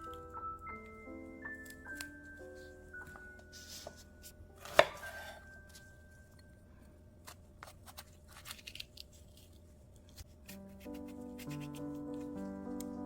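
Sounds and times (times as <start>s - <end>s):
knife chopping on cutting board: 4.6s - 5.4s.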